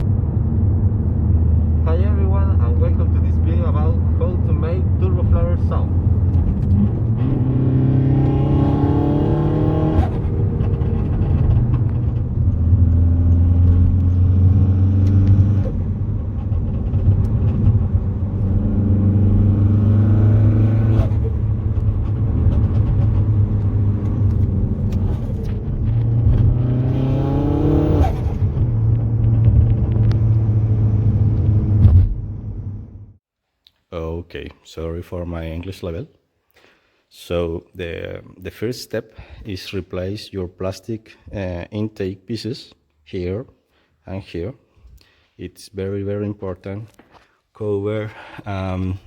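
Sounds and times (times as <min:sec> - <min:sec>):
car engine accelerating: 0:00.0 - 0:33.2.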